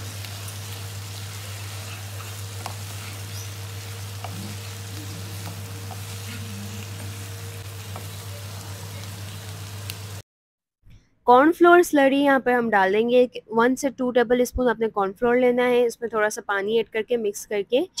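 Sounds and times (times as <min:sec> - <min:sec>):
food sizzling in oil: 0:00.0 - 0:10.2
wooden spatula stirring: 0:01.4 - 0:07.3.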